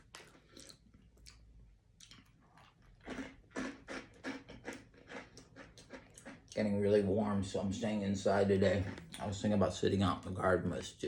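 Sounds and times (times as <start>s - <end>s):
person chewing crunchy snack: 0.0s - 6.6s.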